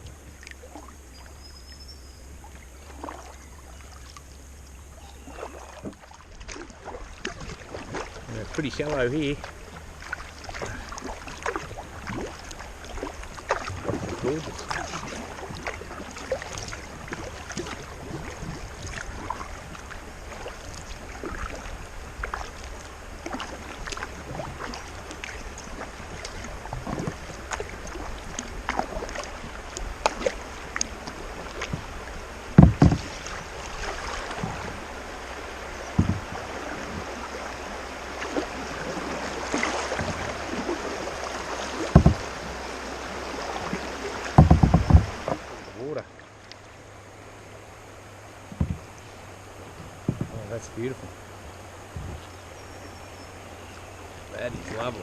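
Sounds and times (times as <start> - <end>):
paddle dipping and dripping: 0.0 - 55.0
dull knocks: 32.5 - 33.1, 35.9 - 37.1, 41.8 - 42.3, 44.3 - 45.4, 48.5 - 49.0, 49.7 - 50.6, 51.9 - 52.3.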